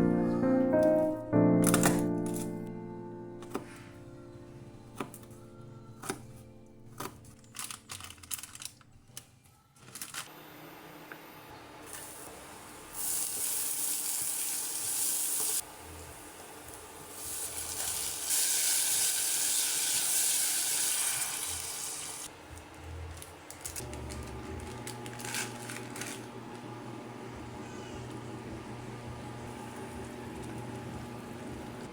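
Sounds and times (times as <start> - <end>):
water running from a tap: 17.2 - 22.3.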